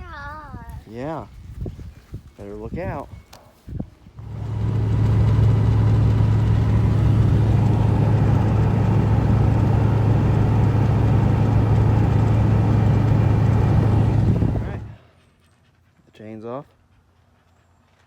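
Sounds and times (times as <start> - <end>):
motor humming steadily: 4.2 - 15.0.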